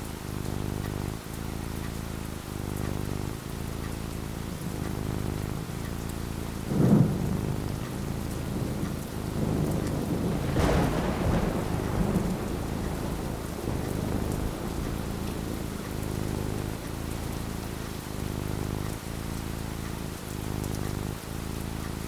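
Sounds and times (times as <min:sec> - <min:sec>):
steady rain: 0:00.0 - 0:22.0
low rolling thunder: 0:06.4 - 0:20.9
thunder crack: 0:06.6 - 0:19.0.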